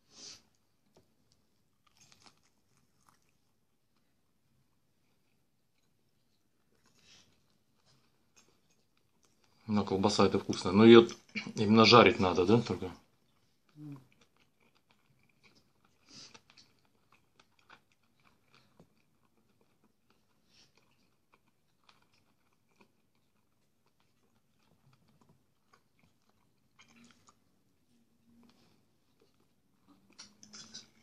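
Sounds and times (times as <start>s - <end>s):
person chewing food: 0.0s - 9.6s, 12.9s - 31.0s
mouth clicks and smacks: 29.9s - 31.0s.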